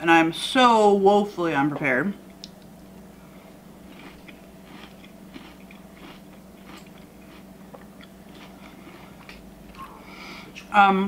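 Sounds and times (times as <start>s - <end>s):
person chewing crunchy cereal: 3.4s - 10.2s.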